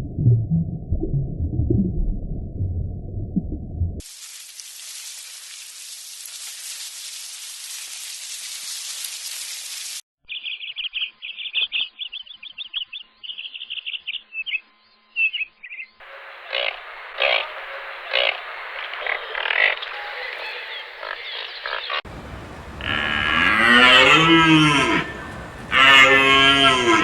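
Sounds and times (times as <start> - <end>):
steady hiss: 4.0 - 10.0, 22.1 - 23.4
small bird chirping: 10.2 - 16.0.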